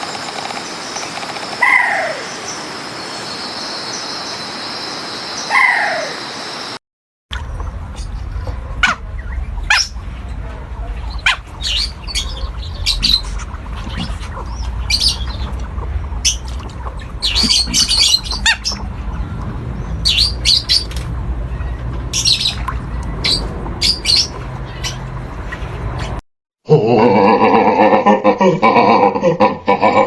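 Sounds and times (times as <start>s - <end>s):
steady low rumble: 7.3s - 26.2s
birds squawking and chirping: 8.0s - 26.2s.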